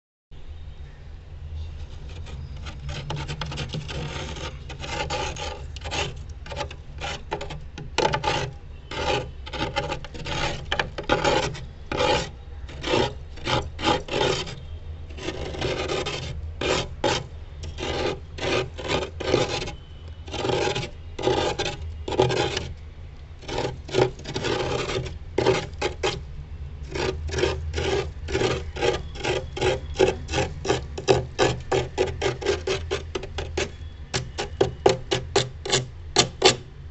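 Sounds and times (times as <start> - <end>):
metal spoon scraping frost: 2.0 - 22.7, 23.4 - 26.2, 26.9 - 36.6.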